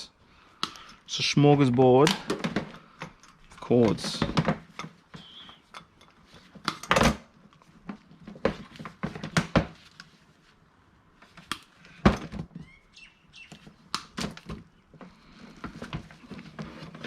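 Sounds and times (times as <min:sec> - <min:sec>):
electrical cords and plugs clattering: 0:00.6 - 0:10.1, 0:13.9 - 0:17.0.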